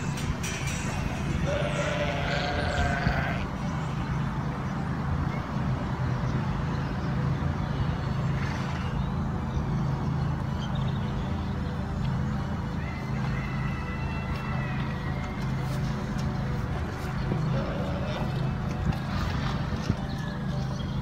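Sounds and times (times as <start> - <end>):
farm animal bleating: 1.2 - 3.7, 17.1 - 18.6.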